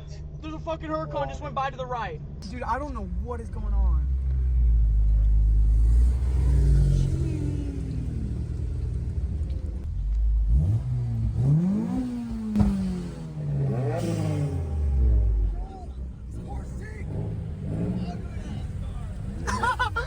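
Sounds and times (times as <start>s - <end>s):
sports cars accelerating past: 4.0s - 20.0s
sharp crack: 11.9s - 14.8s.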